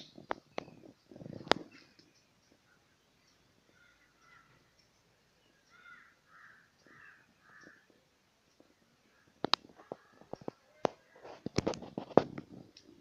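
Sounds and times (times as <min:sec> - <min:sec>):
bird calling: 0:00.0 - 0:08.0.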